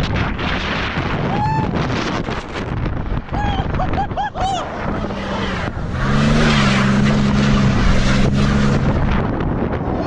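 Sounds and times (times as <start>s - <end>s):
truck engine pulling away: 4.9s - 9.4s.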